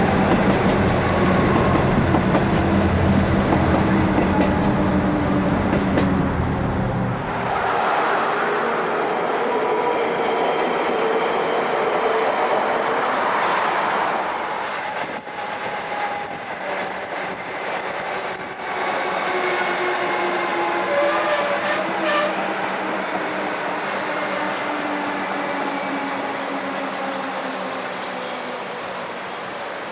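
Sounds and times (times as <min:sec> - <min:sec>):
train wheel and rail noise: 0:00.0 - 0:29.9.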